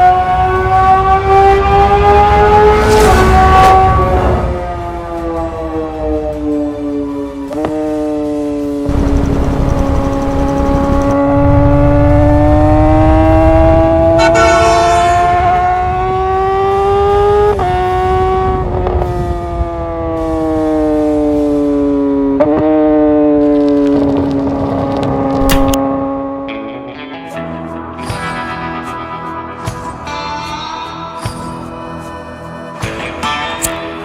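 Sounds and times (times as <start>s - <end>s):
motorcycle engine revving high: 8.9s - 16.3s.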